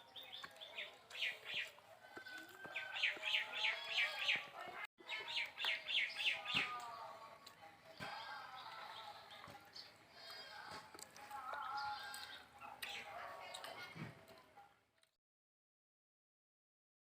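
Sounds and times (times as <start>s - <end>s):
birds chirping: 0.0s - 7.2s, 7.9s - 14.0s.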